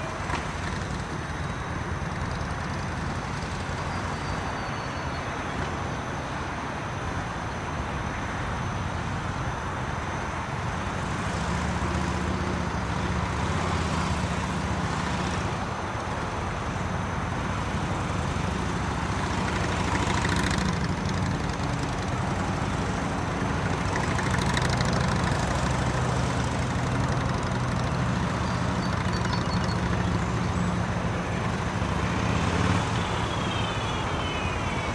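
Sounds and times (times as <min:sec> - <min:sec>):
motorcycle engine running: 0:11.0 - 0:33.8.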